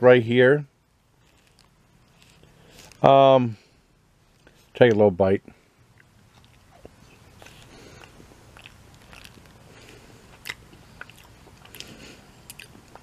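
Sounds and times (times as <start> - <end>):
person chewing crunchy food: 1.2 - 3.1, 5.9 - 13.0.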